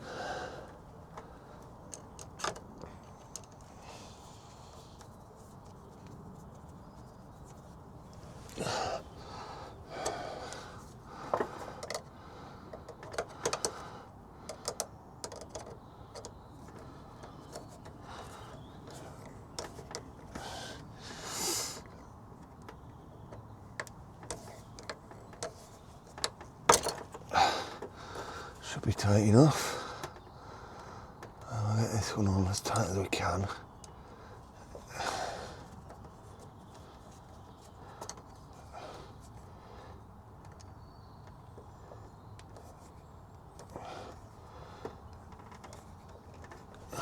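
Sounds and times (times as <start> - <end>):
small metallic clicks and taps: 11.3 - 12.1, 12.7 - 13.8, 14.5 - 20.4, 21.8 - 28.3, 38.0 - 38.5, 40.4 - 41.7, 44.8 - 47.0.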